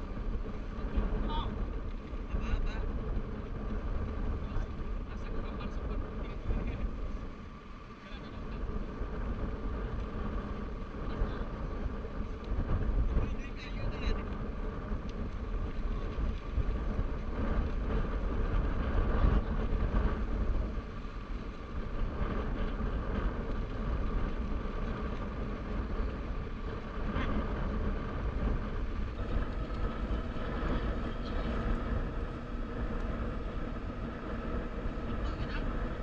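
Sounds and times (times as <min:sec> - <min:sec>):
motorcycle engine running: 0:14.1 - 0:36.0.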